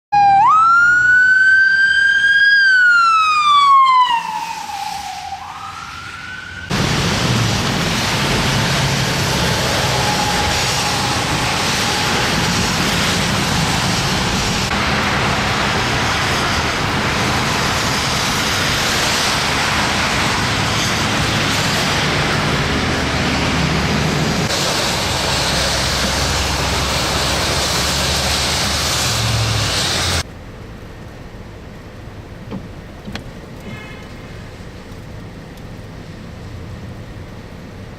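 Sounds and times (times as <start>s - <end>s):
siren wailing: 0.1s - 6.8s, 9.4s - 12.8s
road traffic rushing: 0.1s - 37.9s.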